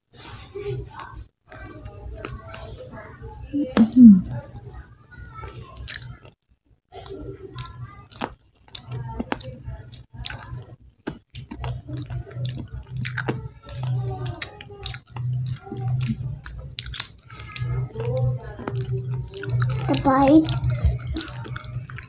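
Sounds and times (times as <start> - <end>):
crunchy chewing: 5.6 - 6.4, 7.0 - 22.0.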